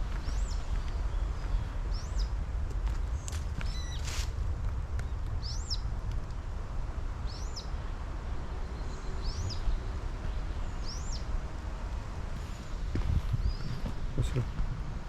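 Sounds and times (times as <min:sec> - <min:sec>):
small bird calling: 0:03.6 - 0:04.2.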